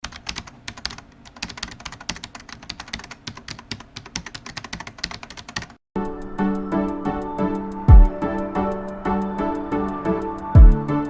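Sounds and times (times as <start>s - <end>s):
rapid keyboard typing: 0.0s - 5.8s.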